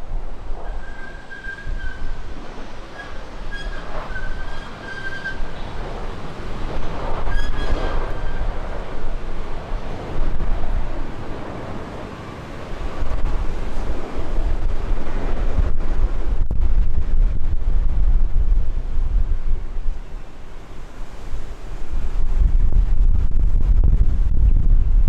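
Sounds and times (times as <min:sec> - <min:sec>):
jet engine rumble: 0:00.0 - 0:25.0
wind buffeting microphone: 0:00.0 - 0:25.0
thin whistling tone: 0:00.8 - 0:02.1, 0:03.0 - 0:05.6.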